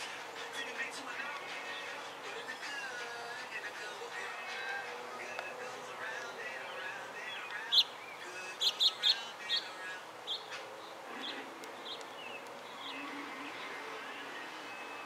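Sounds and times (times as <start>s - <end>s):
small bird chirping: 6.7s - 13.8s.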